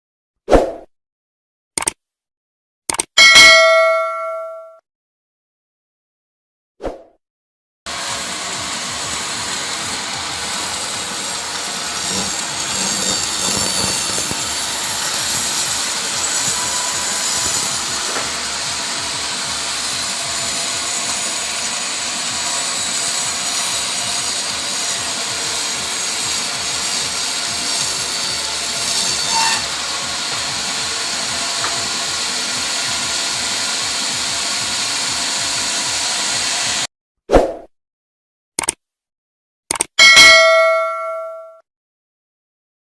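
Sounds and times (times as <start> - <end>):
power saw cutting timber: 7.9 - 36.9.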